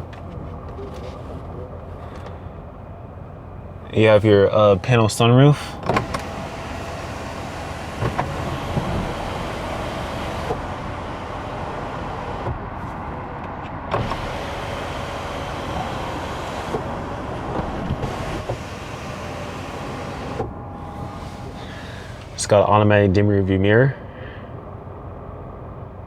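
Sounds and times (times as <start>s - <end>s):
sunroof electric motor running: 5.8s - 22.4s.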